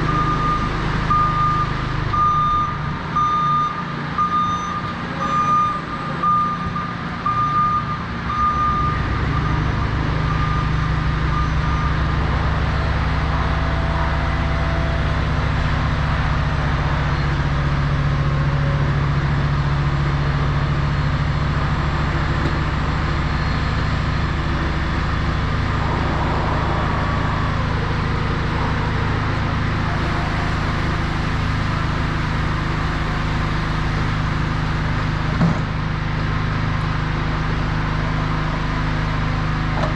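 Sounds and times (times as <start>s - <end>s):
motion alarm beeping: 0.1s - 12.2s.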